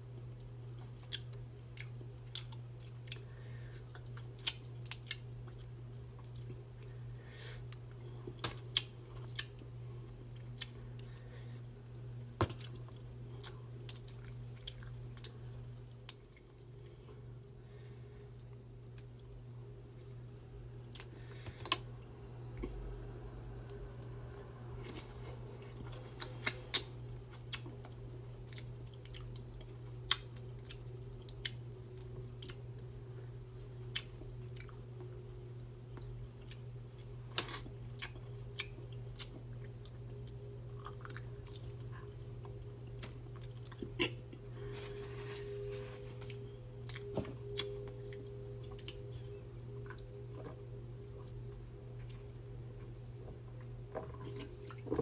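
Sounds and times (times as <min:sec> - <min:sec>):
person chewing food: 0:00.2 - 0:07.0, 0:07.6 - 0:17.2, 0:23.7 - 0:37.0, 0:37.9 - 0:50.6
low hum: 0:40.0 - 0:55.0.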